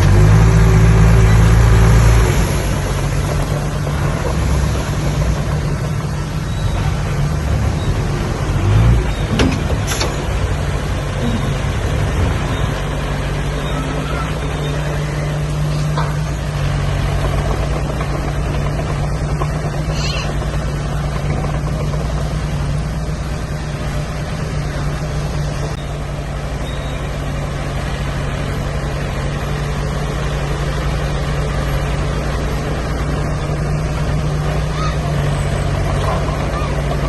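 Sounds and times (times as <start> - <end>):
heavy diesel machinery running: 0.0 - 37.0
high squeak: 13.5 - 15.3.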